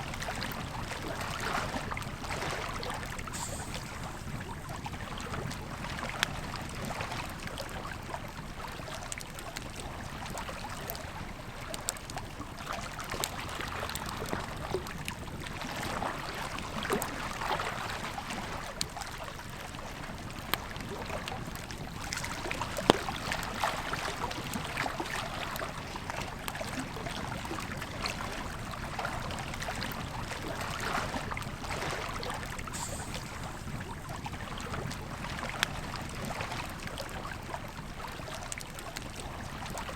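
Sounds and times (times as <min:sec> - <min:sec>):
river flowing: 0:00.0 - 0:06.2, 0:20.9 - 0:35.6
campfire crackling: 0:00.1 - 0:39.9.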